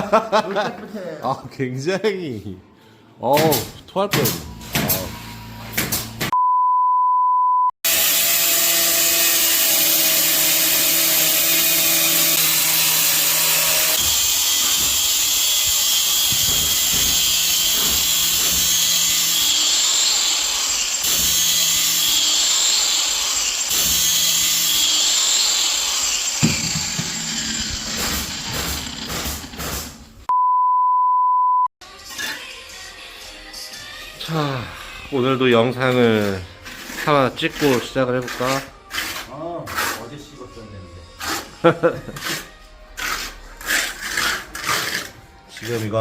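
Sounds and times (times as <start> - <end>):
power tools running: 4.4 - 6.3, 7.9 - 30.2
short steady beep: 30.3 - 31.7.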